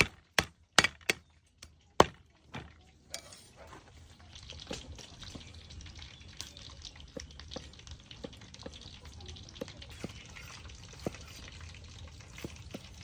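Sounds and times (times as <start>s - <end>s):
utensil knocking on pan: 0.0s - 1.2s
food sizzling and crackling: 3.3s - 13.0s.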